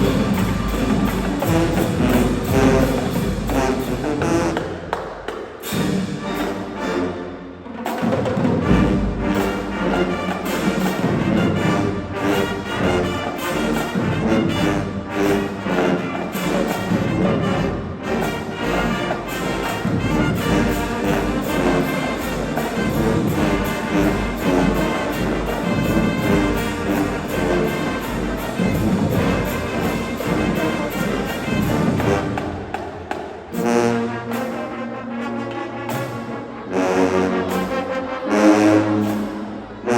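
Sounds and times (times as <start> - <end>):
heavy low drumming: 0.0 - 4.5
marching band brass playing: 0.0 - 39.9.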